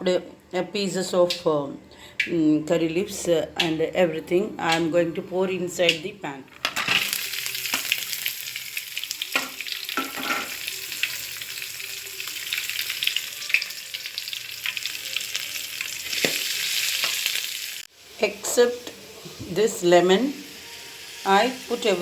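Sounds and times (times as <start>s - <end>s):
food sizzling in hot oil: 6.8s - 22.0s
frying pan knocks: 9.4s - 10.6s.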